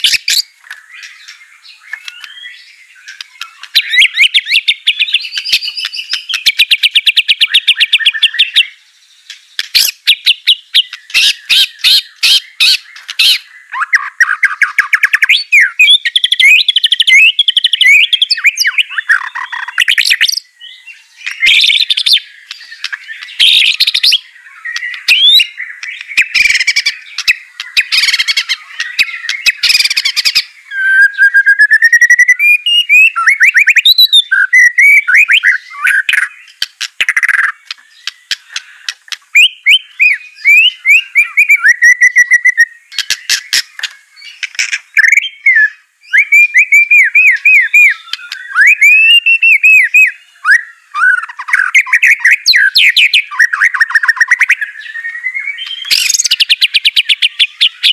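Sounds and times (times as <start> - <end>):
bird harsh rasping chatter: 0.0 - 8.7, 9.3 - 17.3, 21.2 - 30.6, 35.4 - 41.4, 42.9 - 45.2, 55.6 - 57.9
songbird whistles and trills: 0.0 - 57.9.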